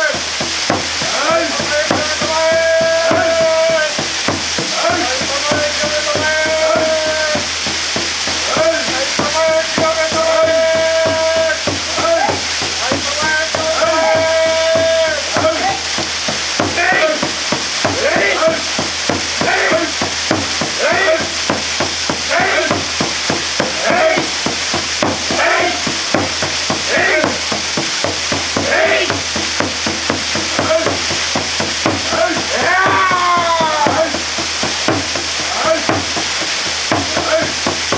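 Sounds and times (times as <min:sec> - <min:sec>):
waterfall pouring: 0:00.0 - 0:37.9
person chanting: 0:04.7 - 0:07.5, 0:08.4 - 0:16.0, 0:16.6 - 0:18.8, 0:19.4 - 0:21.6, 0:22.2 - 0:27.6, 0:28.5 - 0:29.5, 0:32.0 - 0:34.3.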